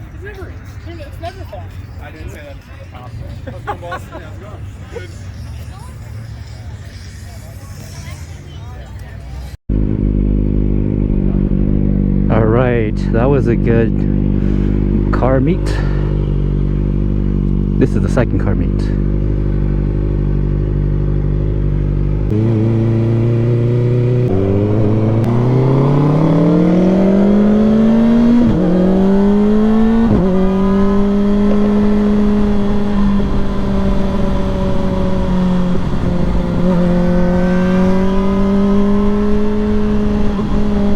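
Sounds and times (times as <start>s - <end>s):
motorcycle engine accelerating: 9.3s - 40.9s.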